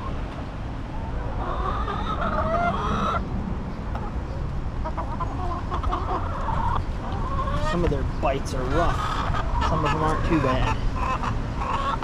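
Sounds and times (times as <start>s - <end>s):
hens clucking: 0.0s - 3.3s, 3.9s - 12.0s
drawn-out wavering hen calls: 0.9s - 3.3s, 4.8s - 7.9s, 8.5s - 12.0s.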